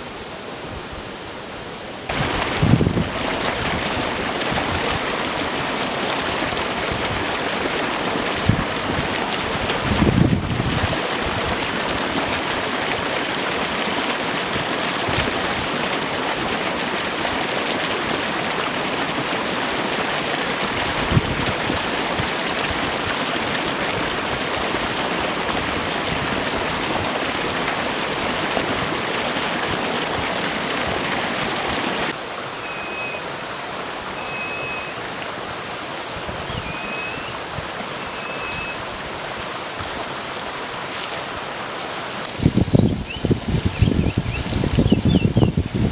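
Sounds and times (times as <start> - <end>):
stream water flowing: 0.0 - 45.9
short high whistled notes: 32.6 - 33.2, 34.2 - 35.0, 38.0 - 38.8.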